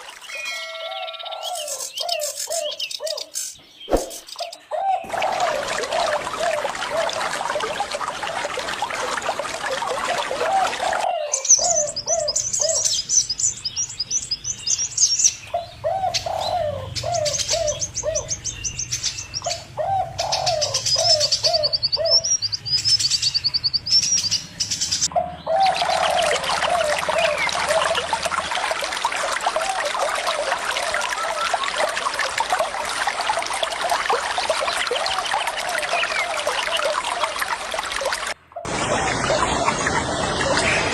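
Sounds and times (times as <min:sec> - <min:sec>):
running water: 0:00.0 - 0:01.7, 0:03.9 - 0:15.2, 0:24.8 - 0:40.9
small birds chirping trills: 0:09.4 - 0:28.4.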